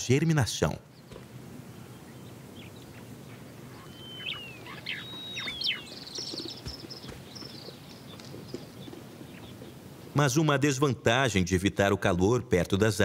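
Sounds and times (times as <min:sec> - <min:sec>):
birds chirping: 0:00.0 - 0:10.5
low outdoor background: 0:00.0 - 0:13.0
fast high bird trill: 0:03.7 - 0:08.8
bird whistles sliding downward: 0:03.8 - 0:06.1.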